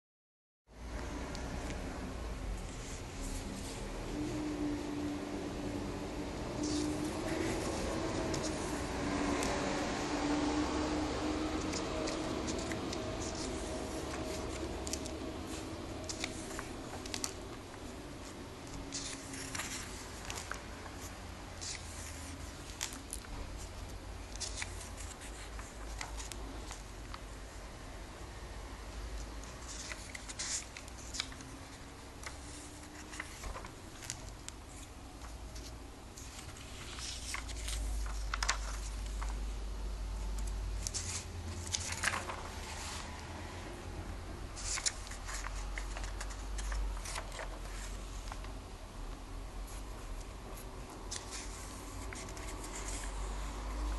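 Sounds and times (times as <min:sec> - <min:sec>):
pages turning: 0:06.5 - 0:09.8, 0:11.6 - 0:27.3, 0:29.4 - 0:39.5, 0:40.3 - 0:43.5, 0:44.6 - 0:48.6, 0:49.7 - 0:53.9
paper and plastic rustling: 0:11.6 - 0:27.3, 0:29.4 - 0:39.5, 0:40.4 - 0:43.3, 0:44.6 - 0:48.6, 0:50.4 - 0:53.9.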